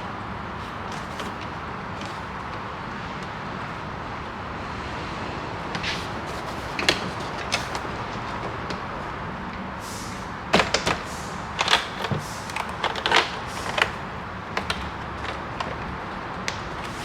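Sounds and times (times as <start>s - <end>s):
background hiss: 9.8s - 12.8s.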